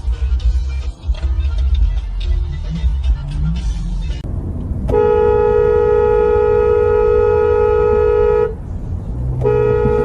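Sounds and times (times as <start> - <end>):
car horn blast: 4.9 - 8.6, 9.3 - 10.0.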